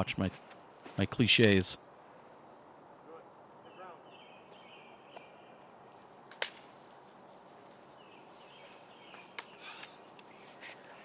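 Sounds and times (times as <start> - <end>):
faint high outdoor buzz: 0.1 - 11.0
sharp crack: 6.3 - 6.8.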